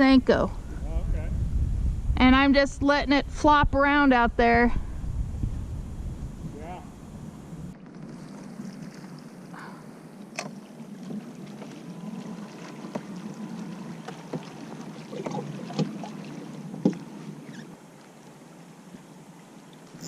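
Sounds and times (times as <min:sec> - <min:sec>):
water lapping against boat hull: 0:07.7 - 0:20.0
knocks and clicks from boat: 0:09.6 - 0:17.8.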